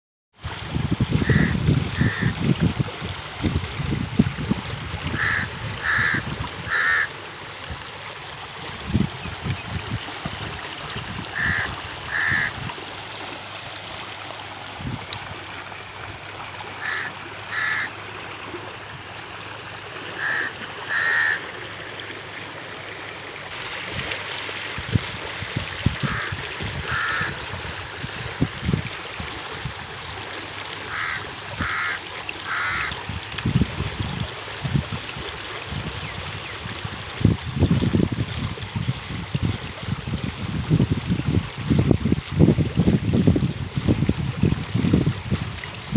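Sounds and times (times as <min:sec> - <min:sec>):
bird calling: 0:01.2 - 0:02.3, 0:05.2 - 0:07.1, 0:11.4 - 0:12.5, 0:16.8 - 0:17.9, 0:20.2 - 0:21.4, 0:26.9 - 0:27.3, 0:30.9 - 0:32.9.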